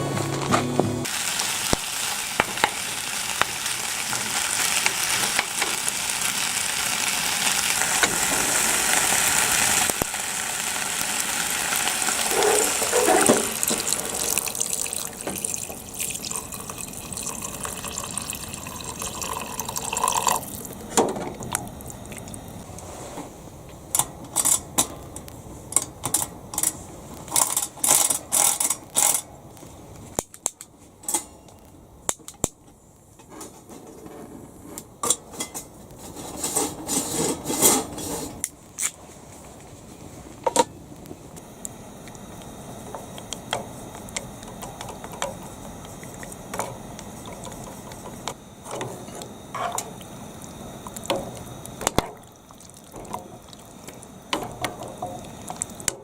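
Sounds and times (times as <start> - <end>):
water running from tap: 1.0 - 20.7.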